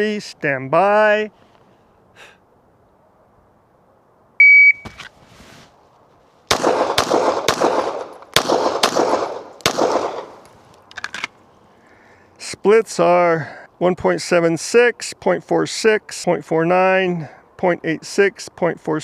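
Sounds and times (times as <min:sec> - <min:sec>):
shot timer beep: 0:04.4 - 0:04.9
pistol shots with echo: 0:06.5 - 0:10.4.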